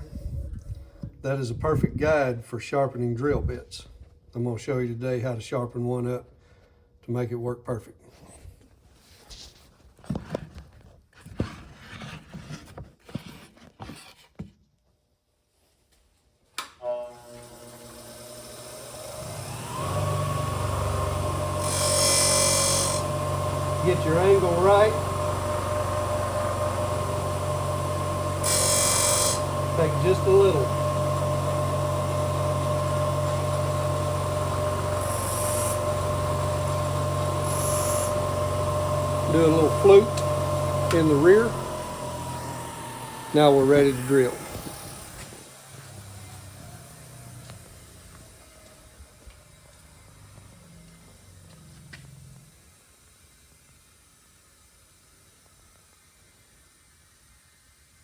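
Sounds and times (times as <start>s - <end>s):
bench grinder whine: 16.8s - 49.8s
hissing grinding of drill bit: 17.4s - 48.4s.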